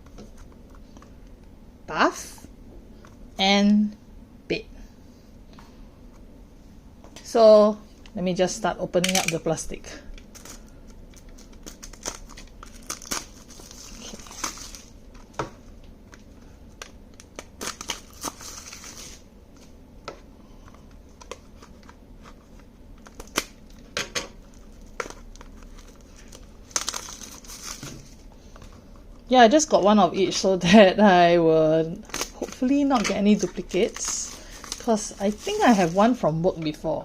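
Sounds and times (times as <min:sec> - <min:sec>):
plastic wrap crinkling: 0:10.2 - 0:15.4, 0:17.1 - 0:19.2, 0:21.2 - 0:29.2, 0:32.0 - 0:36.3.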